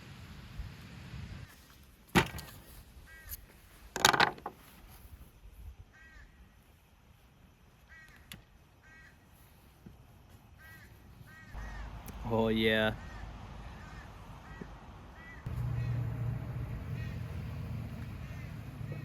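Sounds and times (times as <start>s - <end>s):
bird calls: 7.8s - 19.0s.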